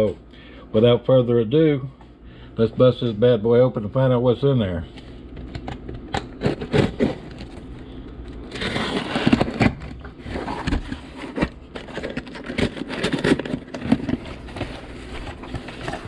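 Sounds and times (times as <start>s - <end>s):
cardboard tearing: 6.2s - 7.7s, 8.4s - 16.0s.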